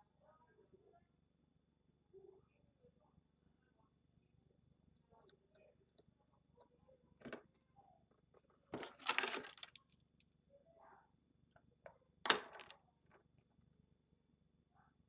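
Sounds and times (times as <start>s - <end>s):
rustling scraping handling noises: 8.8s - 9.8s.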